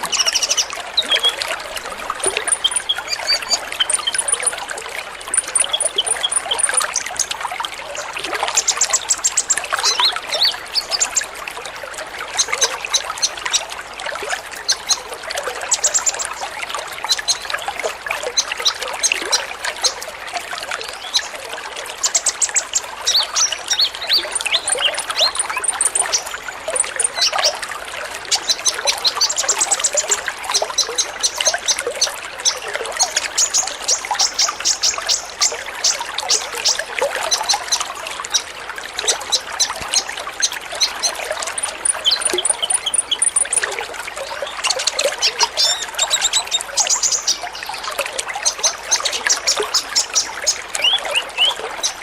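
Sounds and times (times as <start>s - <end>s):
birds chirping and trilling: 0.0s - 7.4s, 8.0s - 11.3s, 20.9s - 21.3s, 21.9s - 27.6s, 28.2s - 52.0s
trickling water-like hiss: 0.0s - 52.0s.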